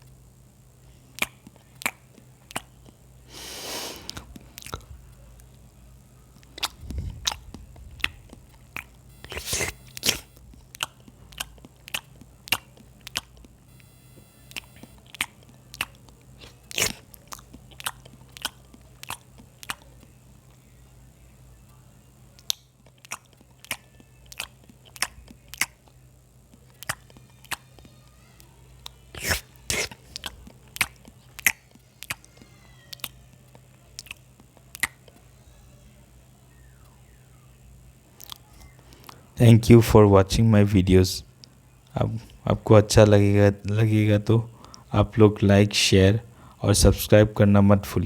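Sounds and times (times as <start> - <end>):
steady low hum: 0.0 - 48.0
chewing and crunching: 0.9 - 3.2, 4.0 - 5.7, 6.3 - 20.8, 22.3 - 35.3, 38.1 - 39.3
mouth clicks: 1.2 - 3.0, 6.4 - 19.8, 29.2 - 32.2.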